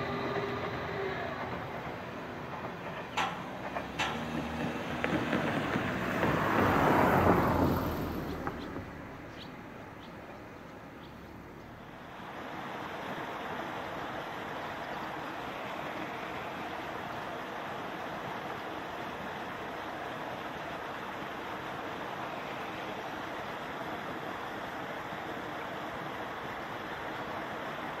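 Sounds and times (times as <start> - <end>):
train wheels clicking: 0.0 - 7.4
train rushing past: 0.0 - 10.0
steady background noise: 0.0 - 28.0.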